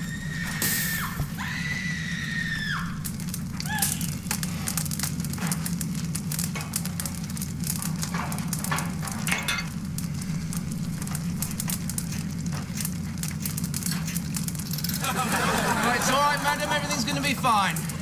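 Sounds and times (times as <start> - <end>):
high cry: 0.0 - 3.0, 3.6 - 4.1
fire crackling and popping: 0.0 - 18.0.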